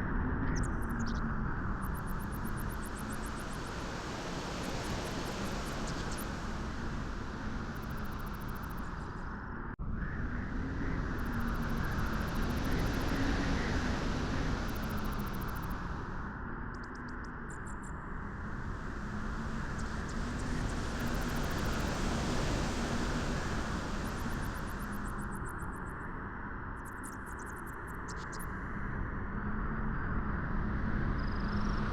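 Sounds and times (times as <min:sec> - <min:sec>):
wind blowing: 0:18.3 - 0:25.3.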